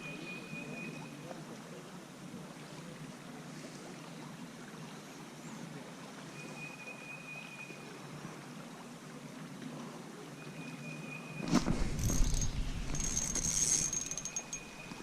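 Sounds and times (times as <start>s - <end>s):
river water flowing: 0.0s - 15.0s
thin high tone: 12.0s - 15.0s.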